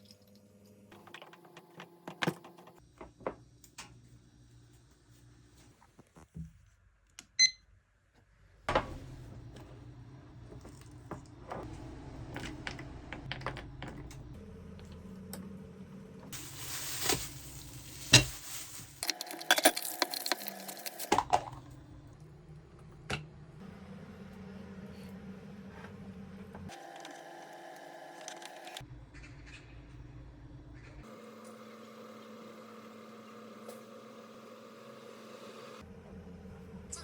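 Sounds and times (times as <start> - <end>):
electronic appliance beep: 7.4 - 7.6.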